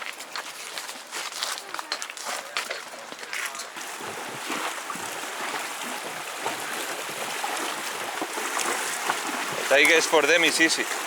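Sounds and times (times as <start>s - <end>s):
flowing water rushing: 3.7s - 11.0s.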